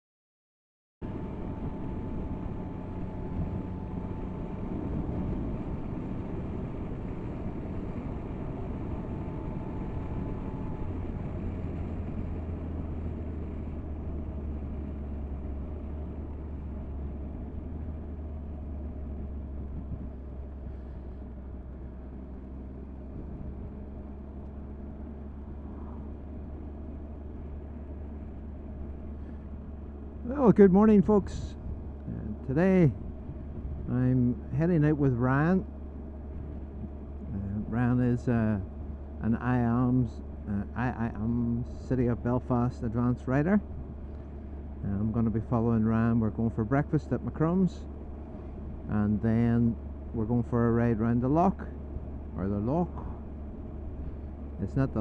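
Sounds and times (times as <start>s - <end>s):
motorcycle engine running: 1.0s - 55.0s.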